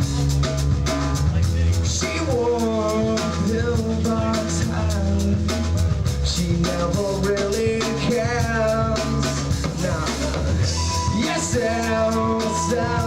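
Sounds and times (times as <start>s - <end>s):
bass guitar: 0.0s - 13.0s
drum kit: 0.0s - 13.0s
electric guitars: 0.0s - 13.0s
bending guitar lead line: 9.6s - 13.0s.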